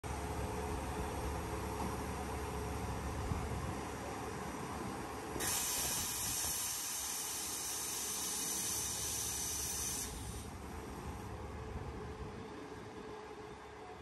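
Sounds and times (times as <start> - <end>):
high hiss of escaping air: 5.4 - 10.5.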